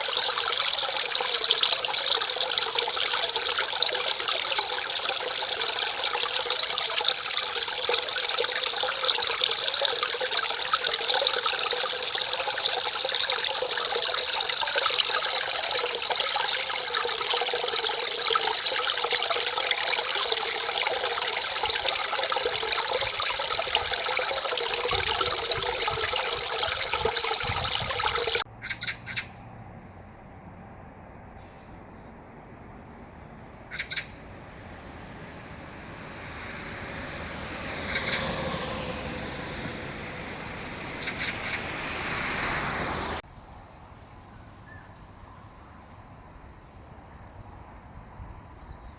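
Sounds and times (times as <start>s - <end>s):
stream rushing: 0.0s - 28.5s, 33.0s - 43.2s.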